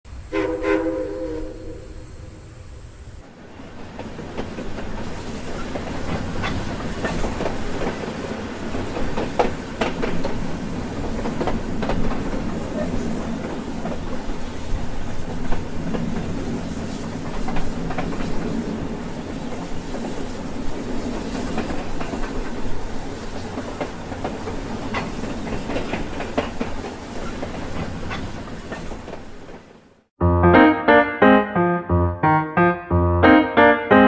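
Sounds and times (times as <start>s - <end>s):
train rumbling on rails: 0.1s - 30.0s
wheels clicking over track: 23.4s - 29.6s.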